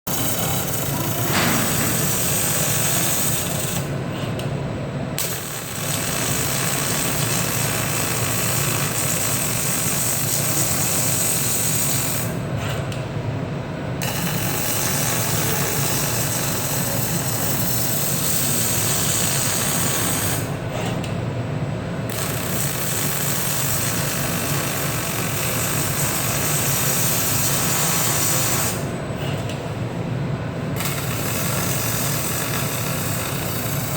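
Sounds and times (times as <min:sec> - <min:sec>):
arc welding crackling: 0:00.1 - 0:03.9, 0:05.2 - 0:12.4, 0:14.0 - 0:20.6, 0:22.1 - 0:28.9, 0:30.8 - 0:33.9
low machine hum: 0:00.1 - 0:05.8.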